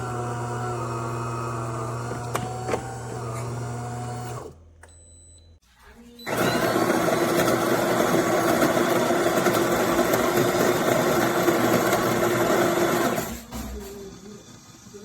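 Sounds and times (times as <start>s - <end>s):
espresso machine motor humming: 0.0s - 4.5s, 6.3s - 13.2s.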